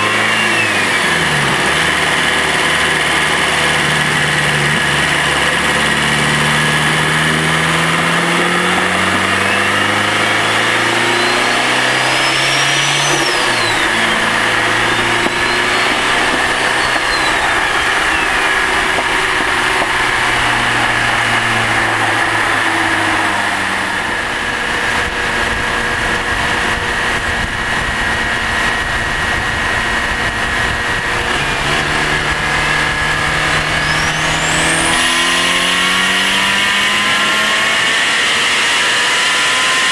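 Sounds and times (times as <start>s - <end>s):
car engine revving through gears: 0.0s - 39.9s
turbo spooling whistle: 8.7s - 23.4s, 32.6s - 38.3s.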